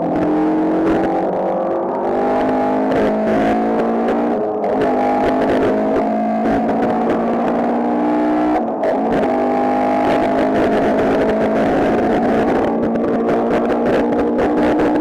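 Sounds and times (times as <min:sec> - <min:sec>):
race car engine accelerating: 0:00.0 - 0:15.0.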